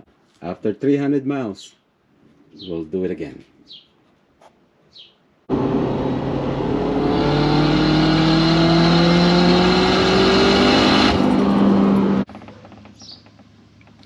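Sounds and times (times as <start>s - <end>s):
turbocharged engine accelerating: 5.5s - 12.3s.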